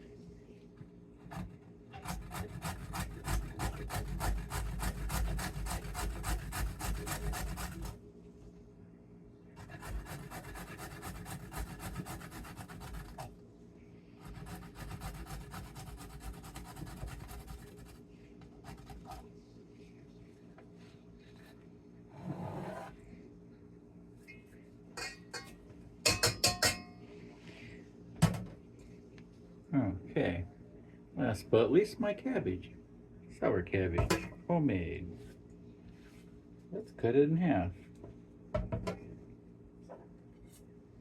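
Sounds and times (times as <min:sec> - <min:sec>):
carrot being grated: 0:02.0 - 0:08.0, 0:09.6 - 0:13.3, 0:14.2 - 0:17.9.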